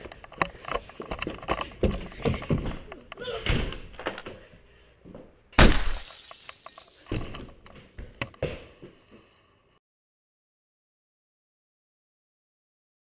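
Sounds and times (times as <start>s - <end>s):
loud crash: 5.6s - 6.4s.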